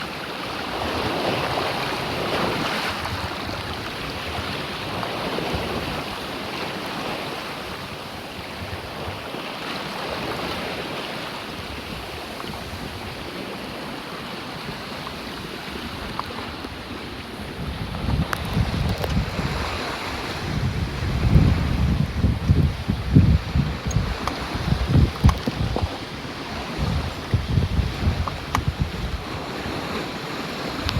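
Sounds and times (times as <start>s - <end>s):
sea water rushing past boat: 0.0s - 30.9s
wind buffeting microphone: 11.6s - 30.9s.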